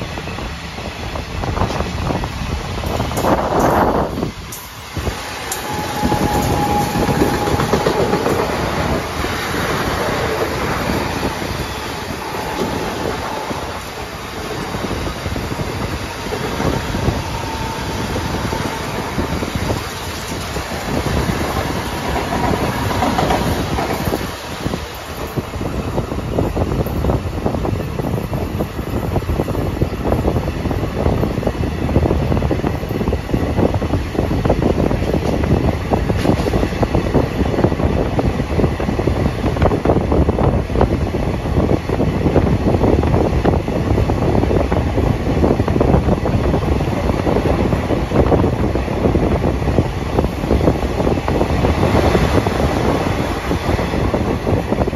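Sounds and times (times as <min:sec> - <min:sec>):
train rumble: 0:00.0 - 0:54.9
wheels clacking over rails: 0:04.5 - 0:25.5
faint high squeal: 0:05.5 - 0:08.2.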